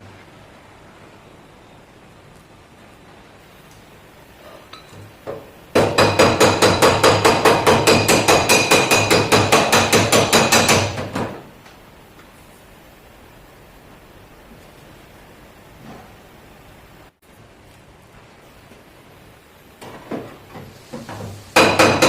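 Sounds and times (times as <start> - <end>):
hammer beating on metal panel: 5.3 - 11.4, 21.6 - 22.0.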